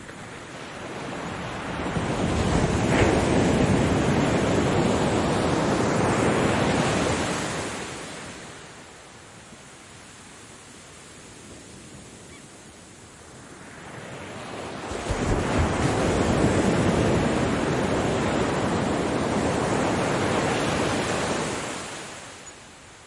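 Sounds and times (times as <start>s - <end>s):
ocean wave breaking: 0.0s - 8.6s, 13.7s - 22.3s.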